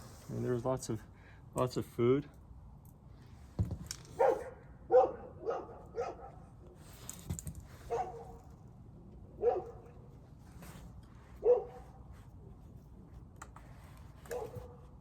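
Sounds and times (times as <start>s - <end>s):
dog barking: 4.2s - 6.5s, 7.9s - 8.4s, 9.4s - 9.9s, 11.4s - 12.0s, 14.3s - 14.8s.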